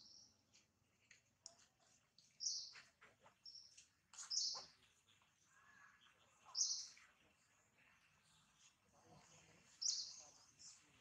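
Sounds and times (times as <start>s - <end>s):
birds chirping: 2.2s - 11.0s.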